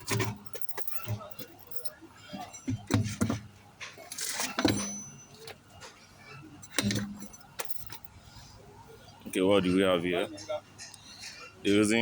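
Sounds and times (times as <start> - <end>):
metal tools clinking: 0.0 - 8.1.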